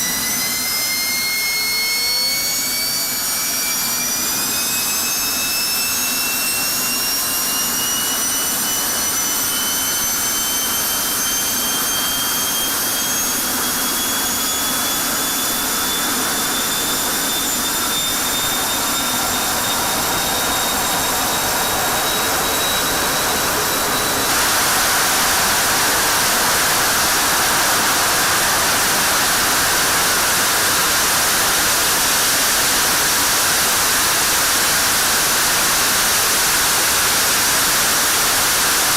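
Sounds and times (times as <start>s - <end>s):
jet engine turbine whine: 0.0s - 38.9s
jet afterburner rush: 16.8s - 38.9s.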